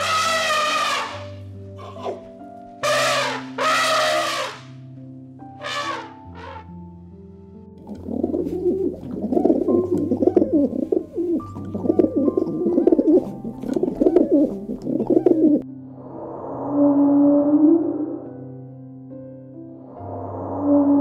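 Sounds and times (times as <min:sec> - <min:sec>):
soft background music: 0:00.0 - 0:21.0
doves cooing: 0:01.8 - 0:02.2, 0:07.9 - 0:15.6.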